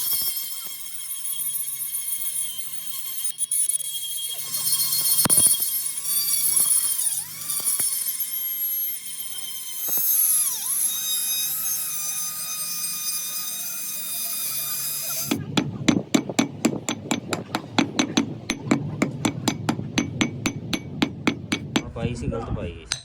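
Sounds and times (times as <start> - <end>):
power tool whining: 0.0 - 21.9
rapid hammer blows: 14.9 - 22.0.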